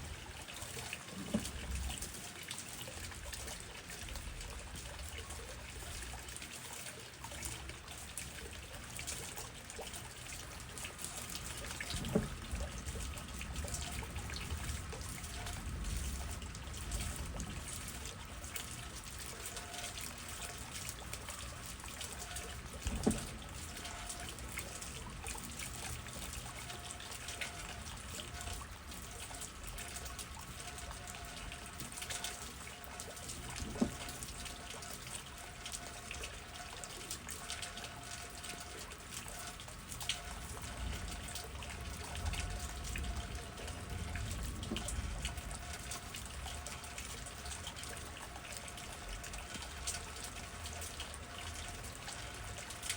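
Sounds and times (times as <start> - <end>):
steady rain: 0.0 - 52.9
water dripping and trickling: 0.0 - 52.9.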